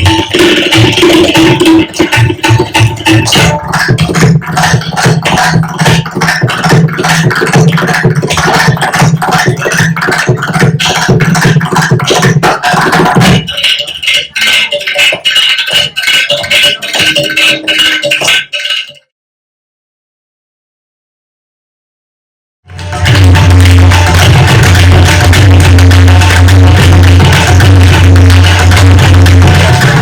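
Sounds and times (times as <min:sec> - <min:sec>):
fast percussion strokes: 0:00.0 - 0:19.0, 0:22.7 - 0:30.0
deep repeating drum tone: 0:22.7 - 0:30.0.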